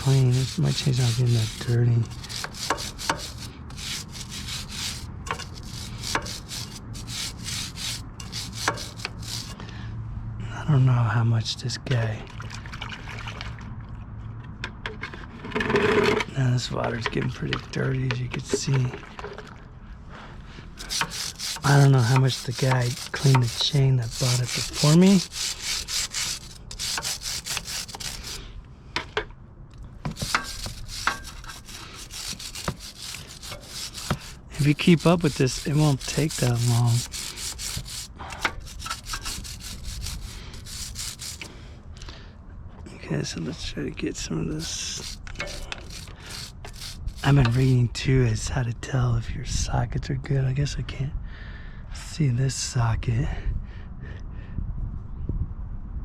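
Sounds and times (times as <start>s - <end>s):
brush scrubbing motorcycle chain: 0.0s - 9.6s, 20.8s - 28.4s, 30.1s - 41.5s, 43.6s - 47.8s.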